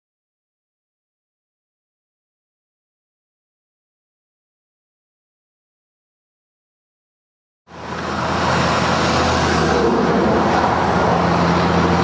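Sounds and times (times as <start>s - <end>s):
low engine hum: 7.7s - 12.0s
road and traffic noise: 7.7s - 12.0s.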